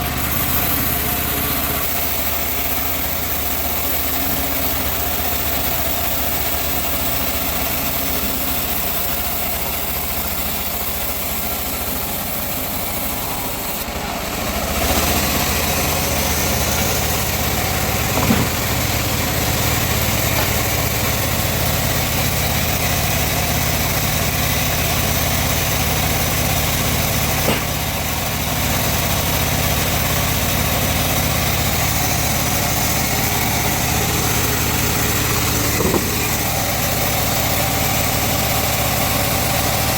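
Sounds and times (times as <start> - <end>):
sawmill machine running: 0.0 - 39.9
short knocks: 18.1 - 18.9, 35.7 - 36.5.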